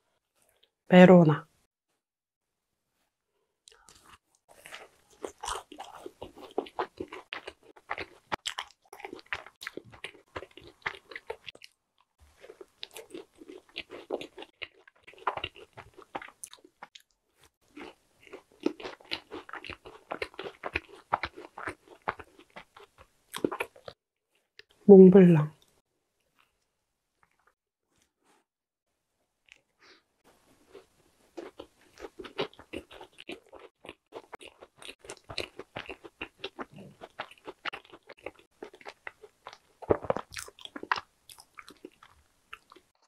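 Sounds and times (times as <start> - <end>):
macaron being chewed: 3.7 - 24.0, 30.3 - 43.0.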